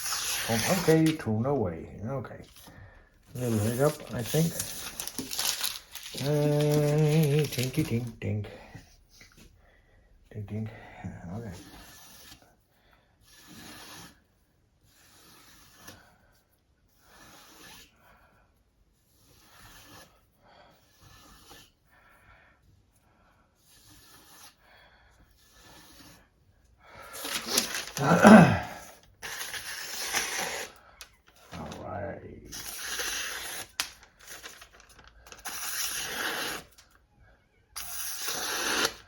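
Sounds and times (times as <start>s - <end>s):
sharpening stone scraping knife: 35.4s - 36.8s.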